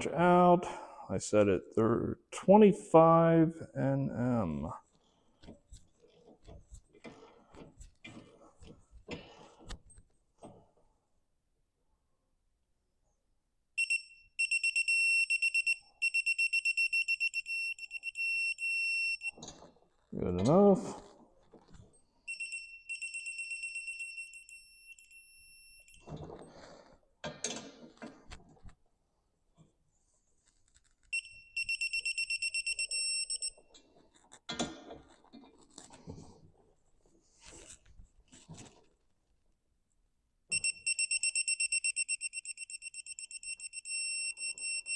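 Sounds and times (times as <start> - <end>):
torque wrench high-pitched beeps: 40.5 - 44.9.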